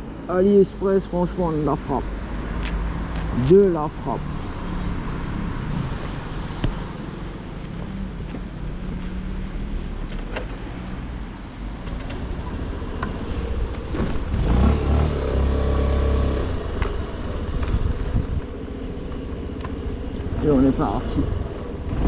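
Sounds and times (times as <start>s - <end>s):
scooter engine idling: 11.2s - 22.0s.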